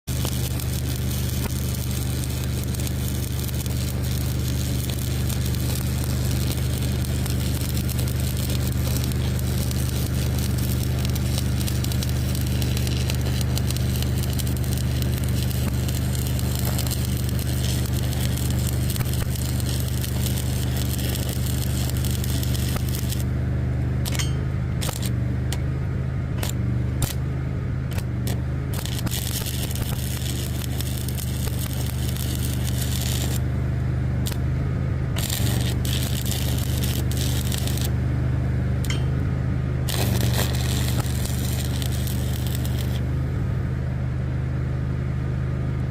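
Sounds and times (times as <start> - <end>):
engine running: 0.0 - 45.9
crackling scraping hiss: 0.1 - 23.3, 27.9 - 33.4, 35.2 - 37.9, 39.9 - 43.1.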